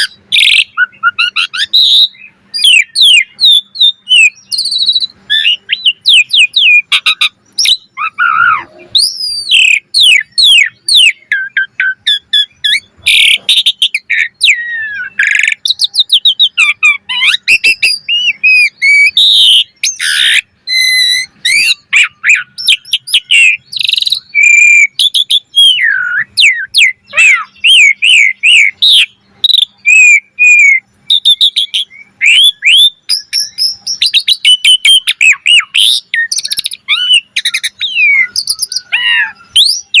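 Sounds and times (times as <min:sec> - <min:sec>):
starling singing varied whistles: 0:00.0 - 0:40.0.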